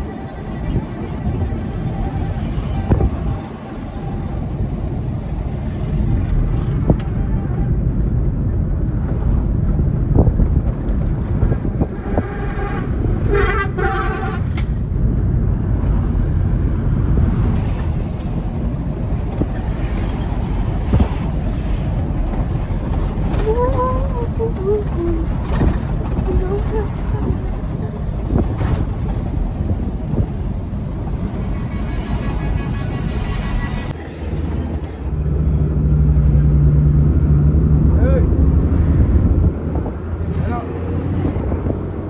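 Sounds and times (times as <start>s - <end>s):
truck engine and road rumble: 0.0s - 42.0s
vehicle horn: 12.0s - 14.7s, 31.5s - 33.9s.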